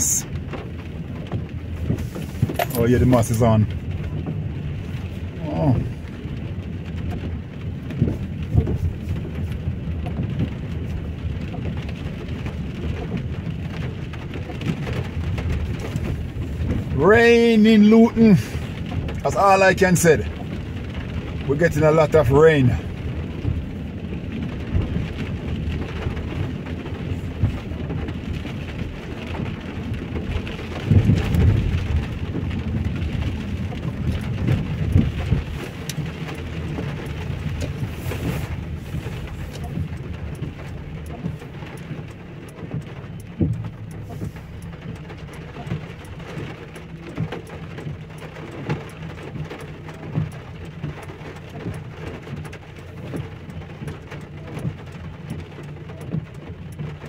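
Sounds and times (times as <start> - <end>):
heavy rain falling: 0.0 - 57.0
low rumble: 22.6 - 57.0.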